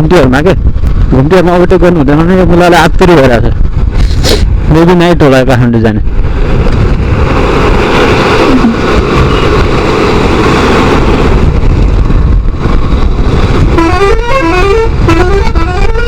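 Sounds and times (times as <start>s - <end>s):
motorcycle engine rumble: 6.2s - 16.0s
vehicle horn playing a tune: 13.7s - 16.0s.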